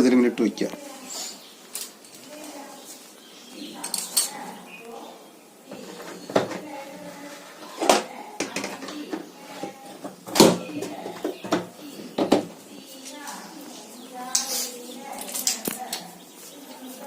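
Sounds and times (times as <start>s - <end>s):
washing machine parts knocking: 10.0s - 12.5s.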